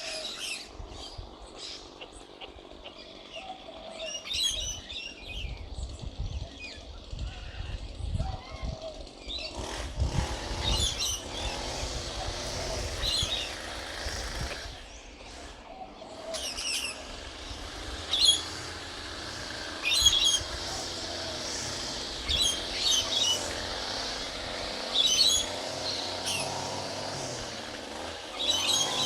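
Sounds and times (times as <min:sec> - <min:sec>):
bird chirping: 0:19.8 - 0:21.1.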